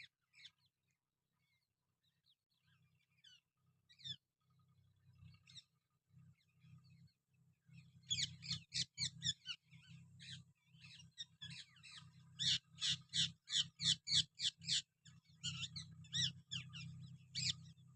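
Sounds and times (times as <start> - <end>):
parrot squawking: 12.4 - 14.8.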